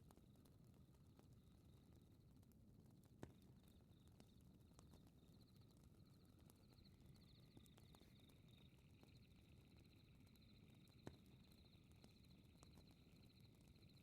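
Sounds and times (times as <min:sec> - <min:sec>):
insects chirping trills: 0:06.1 - 0:14.0.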